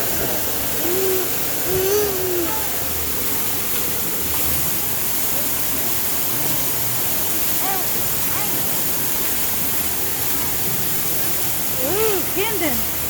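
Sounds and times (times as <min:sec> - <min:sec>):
waterfall rushing: 0:00.0 - 0:13.0
child vocal sounds: 0:00.7 - 0:02.9.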